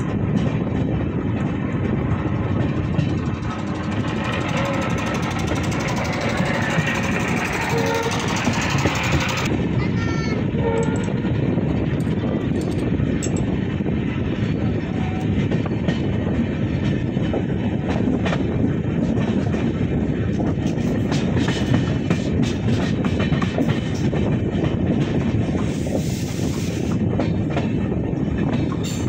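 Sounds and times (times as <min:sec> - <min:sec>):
wheels clicking over rail joints: 0:00.0 - 0:09.5, 0:11.8 - 0:13.6
train rumble: 0:00.0 - 0:29.0.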